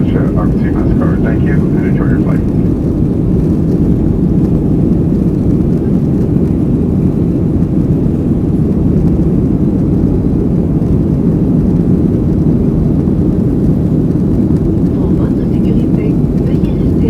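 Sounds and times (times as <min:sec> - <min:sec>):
airplane cabin engine drone: 0:00.0 - 0:17.0.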